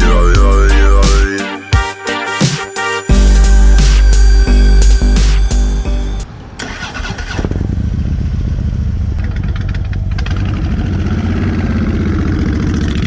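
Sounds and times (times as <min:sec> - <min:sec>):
motorcycle engine starting and idling: 0:06.6 - 0:13.0.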